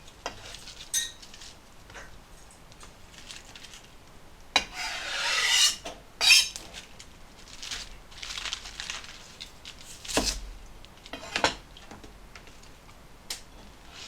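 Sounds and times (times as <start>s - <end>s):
utensils scraping: 0.2s - 1.6s, 4.6s - 6.9s.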